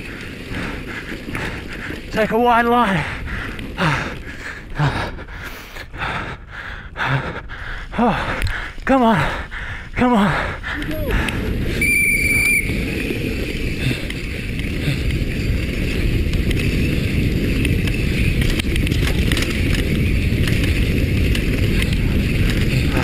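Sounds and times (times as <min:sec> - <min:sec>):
bike tyres rumbling and rattling: 0:00.0 - 0:23.0
wind on microphone: 0:10.6 - 0:23.0.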